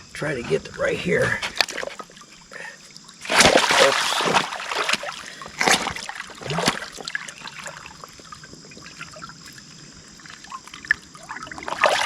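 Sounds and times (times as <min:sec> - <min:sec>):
stream trickling: 0:00.0 - 0:12.0
container splashing into water: 0:03.2 - 0:09.3, 0:10.3 - 0:12.0.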